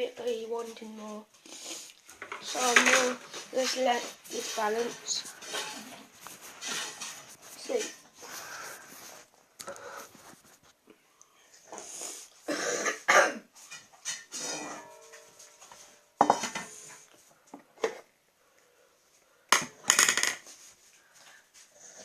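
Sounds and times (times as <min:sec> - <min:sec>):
dry food rattling in dog bowl: 0:02.1 - 0:09.2.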